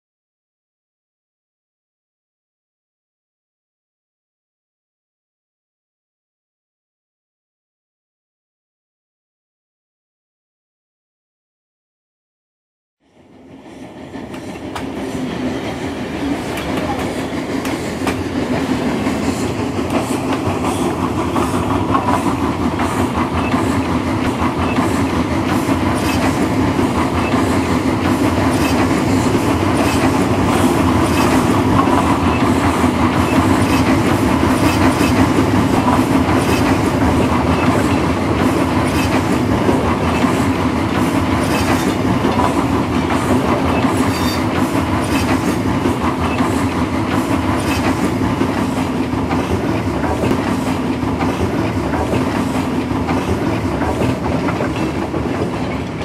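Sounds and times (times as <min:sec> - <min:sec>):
train rumbling on rails: 0:13.0 - 0:56.0
wheels clickety-clack over rail joints: 0:13.5 - 0:56.0.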